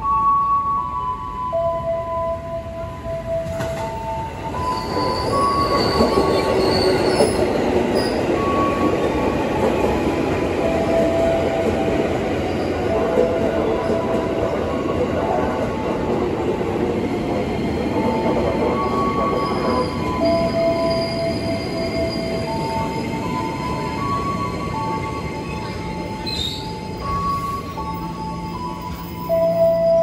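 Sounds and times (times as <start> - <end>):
train wheels rumbling on rails: 3.3 - 30.0
high wheel squeals: 4.6 - 8.5, 25.5 - 27.8.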